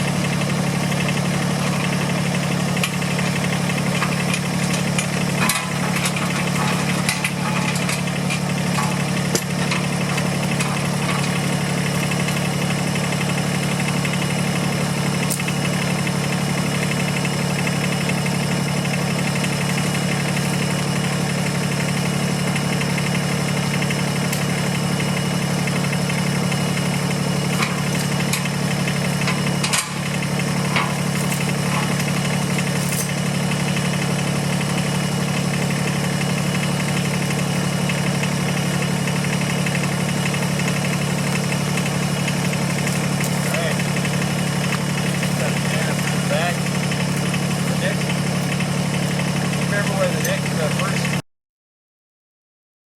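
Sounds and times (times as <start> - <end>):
tractor diesel engine running: 0.0 - 51.2
sharp clicks and knocks: 2.8 - 12.5, 27.5 - 28.6, 29.2 - 33.2.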